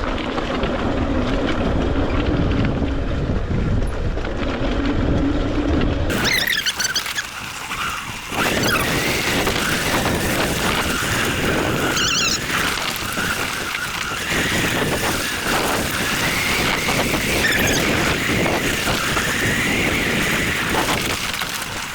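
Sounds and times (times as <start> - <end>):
wind rushing: 1.6 - 21.9
electric motor whine: 6.1 - 21.9
tyre noise: 6.1 - 21.9.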